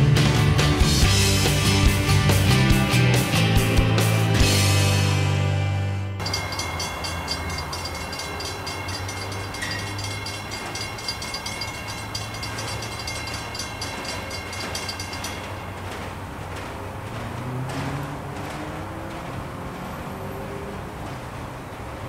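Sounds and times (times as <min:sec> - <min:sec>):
train wheels clicking over rails: 0:06.2 - 0:22.0.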